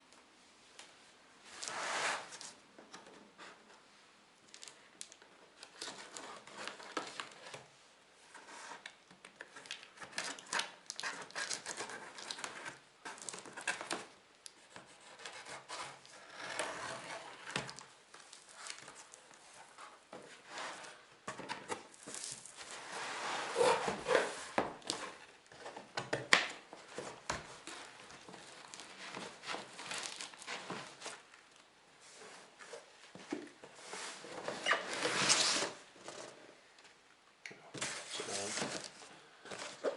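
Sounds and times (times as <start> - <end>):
packaging rustling and crinkling: 26.6 - 36.2, 37.8 - 39.9.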